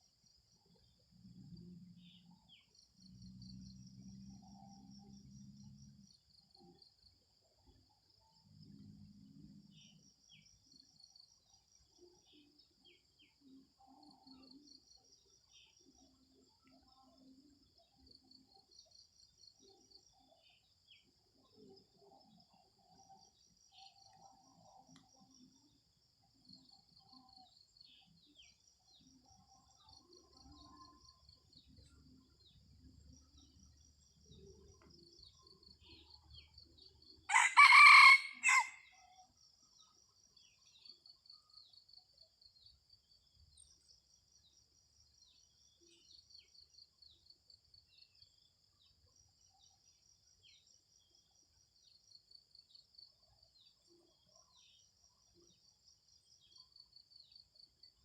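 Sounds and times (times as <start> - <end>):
insects chirping: 0.0 - 58.0
rooster crowing: 37.3 - 38.9.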